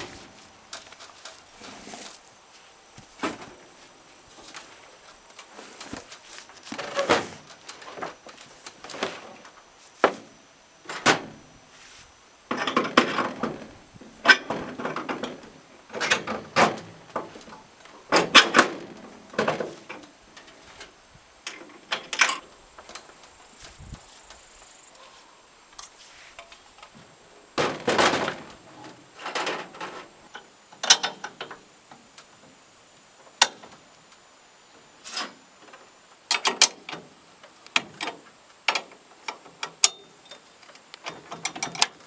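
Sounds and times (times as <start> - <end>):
scraping and rustling: 0.0 - 10.3.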